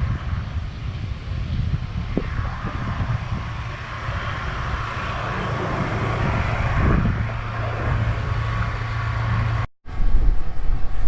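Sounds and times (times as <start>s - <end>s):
outdoor noise: 0.0s - 11.0s
car engine running: 2.2s - 9.7s.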